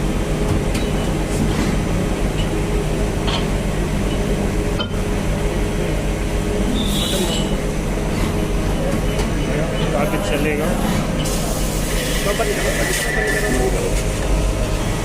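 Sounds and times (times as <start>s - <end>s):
lathe machine hum: 0.0s - 15.0s.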